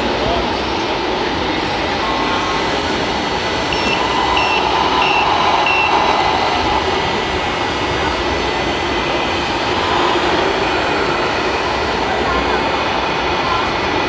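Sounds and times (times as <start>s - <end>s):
dense background rush: 0.0s - 14.0s
reversing beeper beeps: 1.9s - 7.8s.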